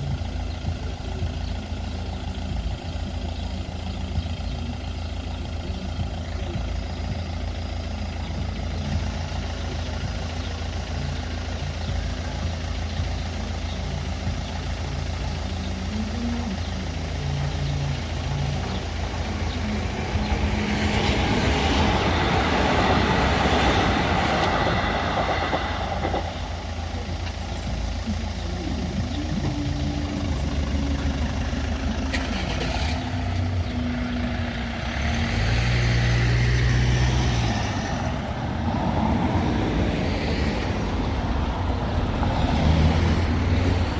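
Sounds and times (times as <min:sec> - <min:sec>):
vehicle engines idling: 0:00.0 - 0:43.9
vehicle driving past: 0:18.2 - 0:27.1, 0:29.2 - 0:43.9.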